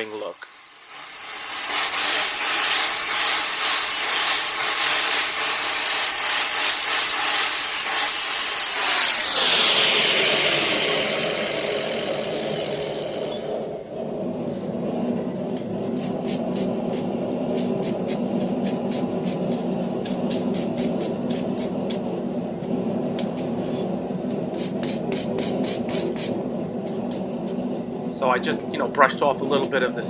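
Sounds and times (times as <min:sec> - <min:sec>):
electric grinder grinding steel: 0:00.0 - 0:13.8
grinder winding down whine: 0:00.0 - 0:20.4.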